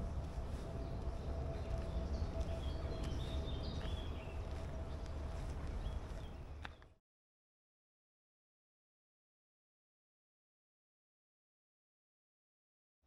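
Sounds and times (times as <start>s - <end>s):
steady low rumble: 0.0s - 6.7s
birds chirping: 0.3s - 6.9s.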